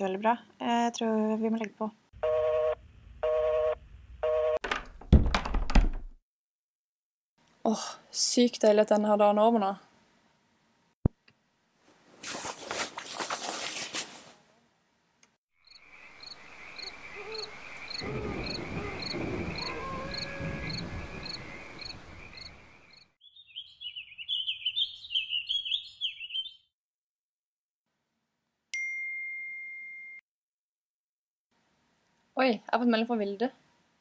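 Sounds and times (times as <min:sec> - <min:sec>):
brief rustle: 0:12.2 - 0:14.4
birdsong: 0:15.6 - 0:26.7.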